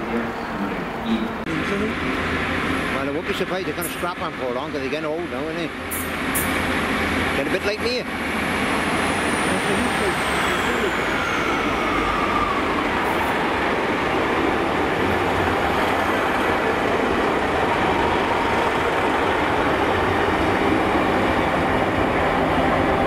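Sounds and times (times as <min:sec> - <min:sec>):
diesel engine: 0:00.0 - 0:23.0.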